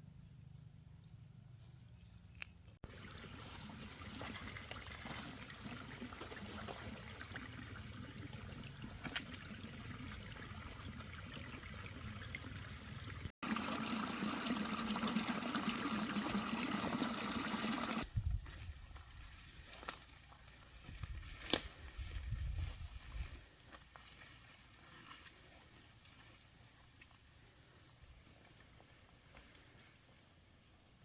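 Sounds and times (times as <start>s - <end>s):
running water trickling: 2.8s - 18.1s.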